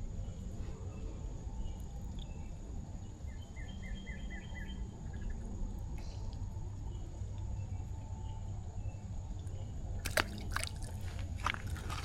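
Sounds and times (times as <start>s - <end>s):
low rushing creek water: 10.0s - 12.0s.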